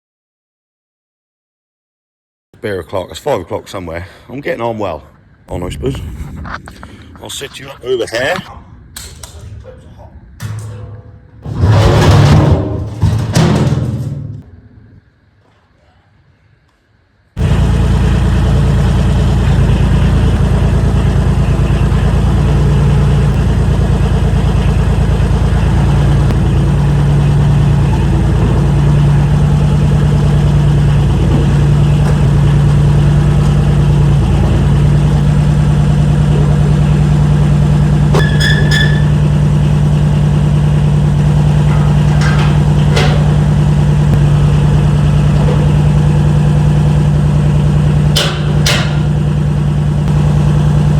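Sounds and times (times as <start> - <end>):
mechanical drone: 5.2 - 9.6, 17.4 - 50.9.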